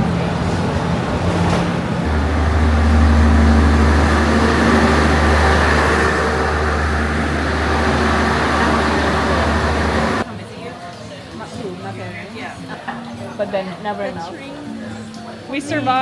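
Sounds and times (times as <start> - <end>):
diesel train engine rumble: 0.0 - 10.3
steady tones: 1.8 - 10.3.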